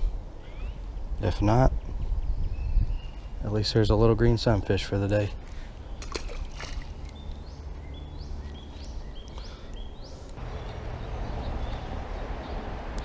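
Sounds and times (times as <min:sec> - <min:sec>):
low rumble of outdoor noise: 0:00.0 - 0:13.0.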